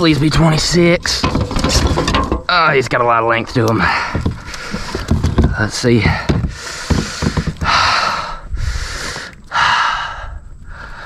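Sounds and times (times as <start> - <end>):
person breathing heavily: 6.1 - 11.0.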